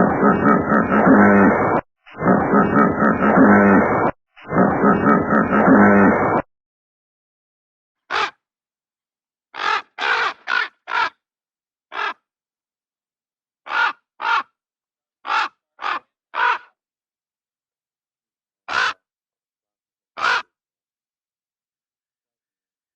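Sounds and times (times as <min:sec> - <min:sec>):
crow cawing: 0:08.1 - 0:08.4, 0:09.6 - 0:11.2, 0:11.9 - 0:12.2, 0:13.7 - 0:14.5, 0:15.2 - 0:16.8, 0:18.7 - 0:19.0, 0:20.2 - 0:20.5.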